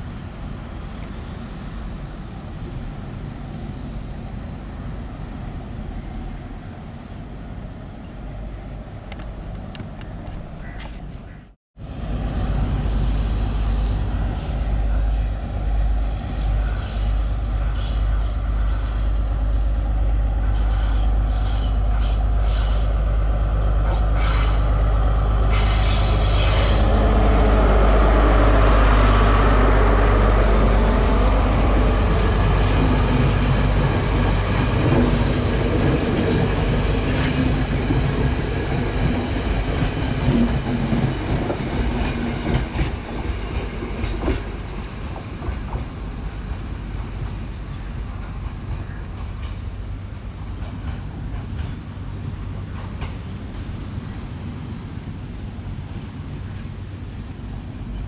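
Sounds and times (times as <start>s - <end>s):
diesel train engine rumble: 0.0s - 58.0s
train wheels on track: 11.9s - 58.0s
high-pitched hiss or squeal: 16.4s - 23.0s, 23.8s - 27.2s.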